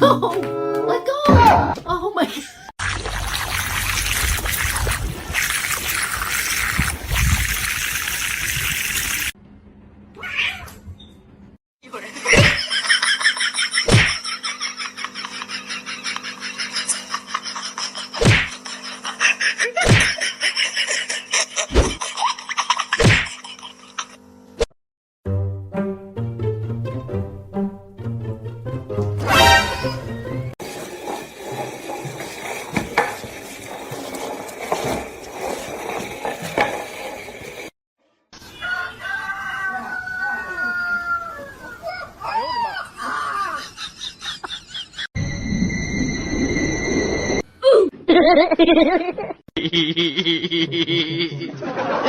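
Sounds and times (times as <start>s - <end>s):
background music: 0.0s - 1.2s, 25.3s - 30.5s
high tone falling in pitch: 45.2s - 47.4s.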